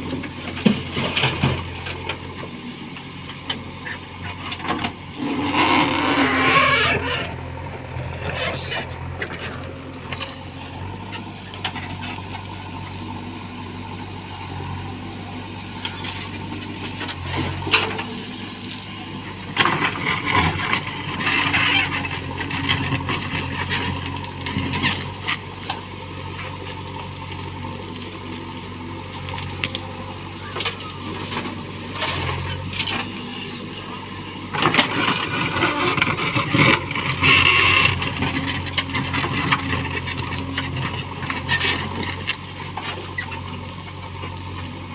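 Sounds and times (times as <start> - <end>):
diesel engine running: 0.0 - 44.9
scraping and clatter: 30.4 - 43.6.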